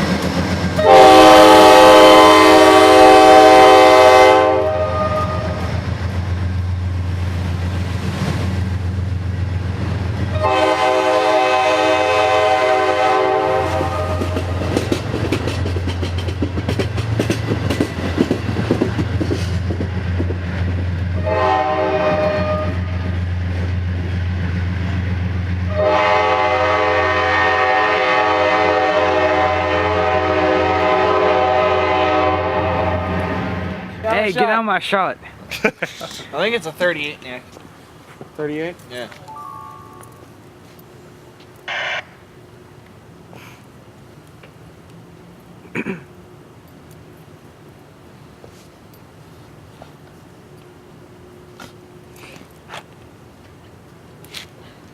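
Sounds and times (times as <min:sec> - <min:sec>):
wheels clacking on rails: 0:00.0 - 0:01.4, 0:12.6 - 0:25.8
locomotive air horn: 0:00.8 - 0:05.6, 0:10.3 - 0:14.4, 0:21.2 - 0:23.0, 0:25.7 - 0:33.7, 0:41.7 - 0:42.0.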